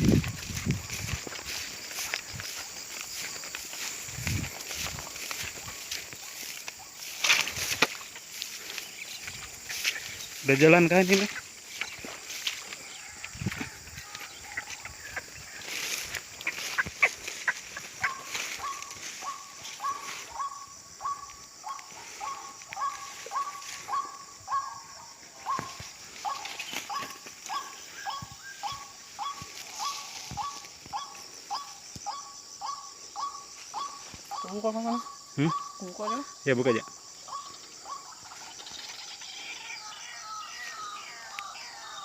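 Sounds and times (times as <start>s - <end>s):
insects hissing: 0.0s - 42.0s
waterhen call: 14.0s - 24.8s.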